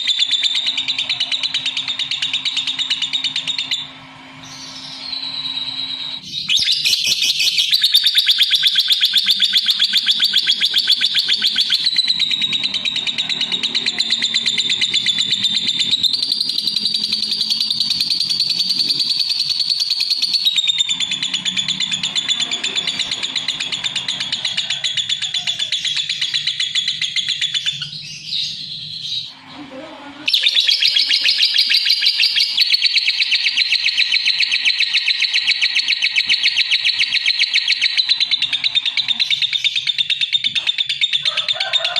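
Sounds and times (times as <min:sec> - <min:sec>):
bird chattering trill: 0:00.0 - 0:41.9.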